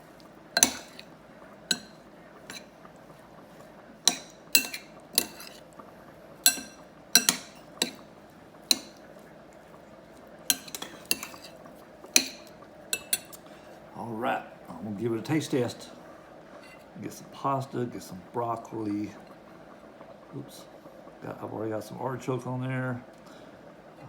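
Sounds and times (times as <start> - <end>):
utensil clinking against bowl: 0.6 - 1.1, 1.7 - 2.7, 4.1 - 5.6, 6.4 - 8.1, 8.7 - 9.0, 10.5 - 13.4.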